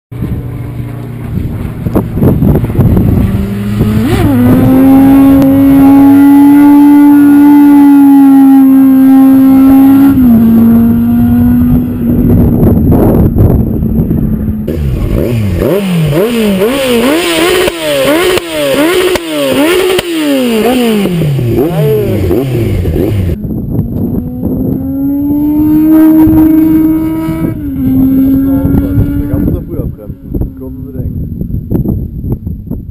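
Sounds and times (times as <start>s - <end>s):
wind noise: 0.1s - 32.9s
steady drawn-out tone: 0.2s - 17.1s
motorcycle engine revving: 0.2s - 32.6s.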